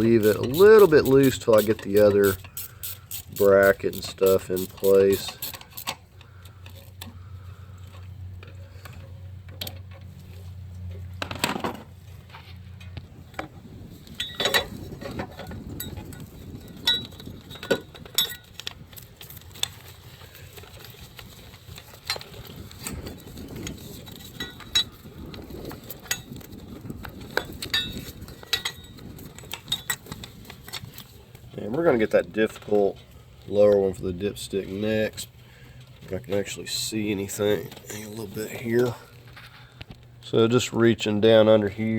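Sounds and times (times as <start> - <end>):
metal tools clinking: 0.0 - 6.0.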